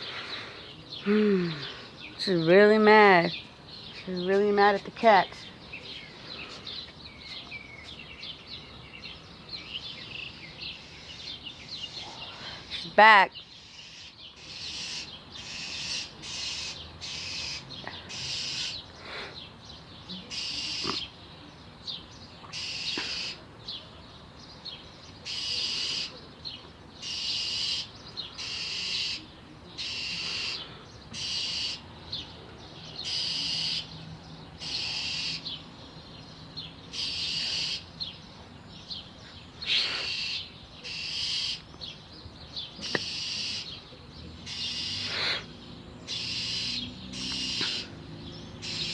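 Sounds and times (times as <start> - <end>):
bird scolding calls: 13.6 - 18.9, 20.2 - 21.2, 22.5 - 23.4, 25.2 - 26.2, 27.0 - 31.9, 33.0 - 33.9, 34.6 - 35.6, 36.9 - 37.9, 39.6 - 41.7, 42.7 - 43.8, 44.4 - 45.5, 46.1 - 48.0, 48.6 - 48.9.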